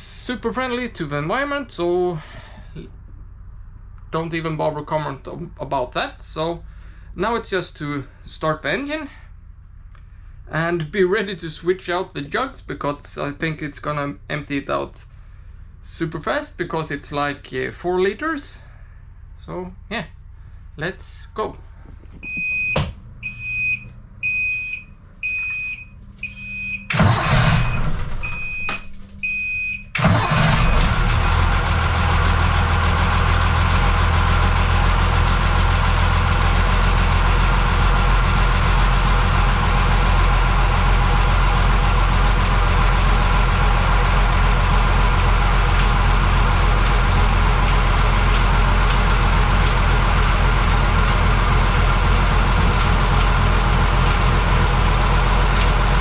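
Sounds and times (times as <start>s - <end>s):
diesel engine idling: 0.0s - 12.0s, 12.6s - 22.4s, 26.9s - 28.0s, 29.9s - 56.0s
alarm beeping: 22.2s - 29.9s
engine starter cranking: 26.9s - 29.2s, 29.9s - 36.4s, 37.0s - 56.0s.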